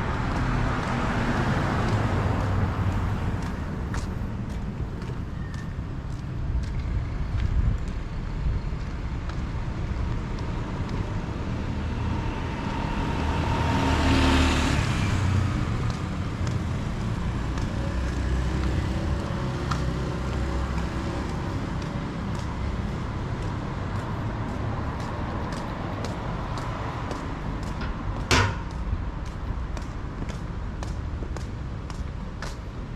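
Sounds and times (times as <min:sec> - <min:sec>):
vehicle passing close by: 0:00.0 - 0:04.8, 0:11.5 - 0:29.0
steady low traffic rumble: 0:00.0 - 0:32.9
sharp knock: 0:27.8 - 0:28.9.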